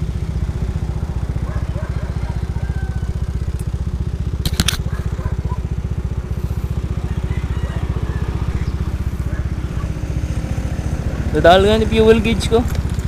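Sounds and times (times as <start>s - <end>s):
motorcycle engine putter: 0.0s - 5.8s, 12.0s - 13.0s
sharp clicks: 4.4s - 5.0s.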